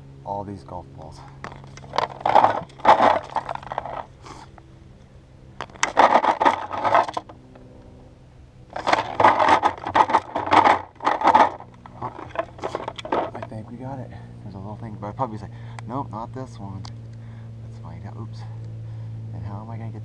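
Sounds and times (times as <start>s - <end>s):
golf balls clattering: 1.4s - 4.2s, 5.6s - 7.4s, 8.7s - 13.7s.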